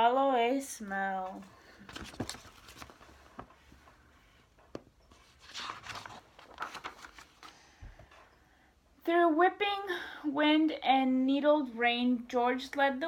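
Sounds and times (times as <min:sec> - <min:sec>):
book page turning rustle: 0:01.2 - 0:04.0, 0:04.7 - 0:07.8.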